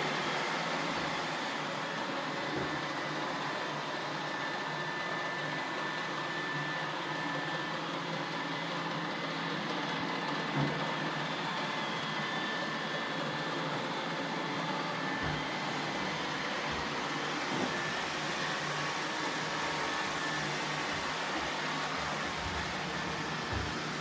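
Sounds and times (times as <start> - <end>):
robot vacuum cleaner whirring: 0.0 - 24.0.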